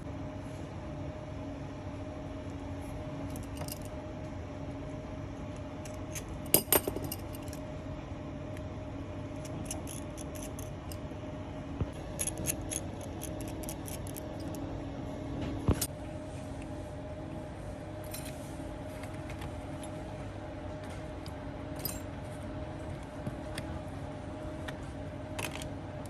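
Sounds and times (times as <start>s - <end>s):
steady electrical hum: 0.0s - 26.0s
metal tools clicking and clinking: 5.8s - 7.6s, 21.8s - 22.1s.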